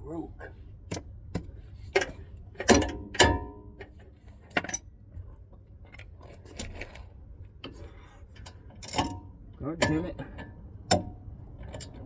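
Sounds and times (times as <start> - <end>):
metal tools clanking on steel: 8.4 - 12.0.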